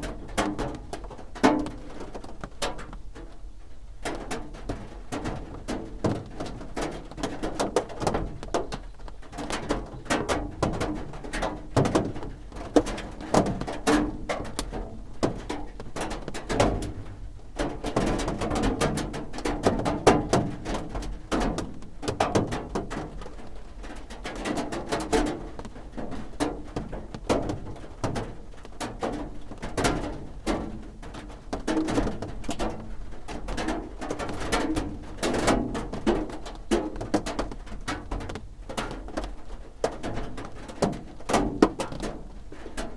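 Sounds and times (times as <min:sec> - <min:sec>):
raindrops drumming on a roof: 0:00.0 - 0:42.9.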